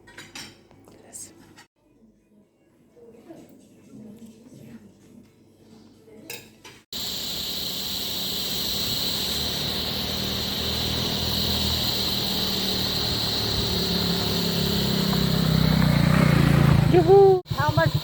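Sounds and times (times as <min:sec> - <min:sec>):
high steady hiss: 0:06.9 - 0:16.8
motorcycle engine running: 0:07.0 - 0:18.0
road and wind noise: 0:09.3 - 0:18.0.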